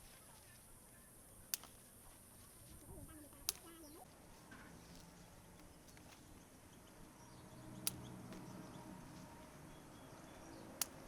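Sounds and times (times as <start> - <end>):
sharp clicks: 1.4 - 1.9, 7.8 - 8.5, 10.7 - 11.0.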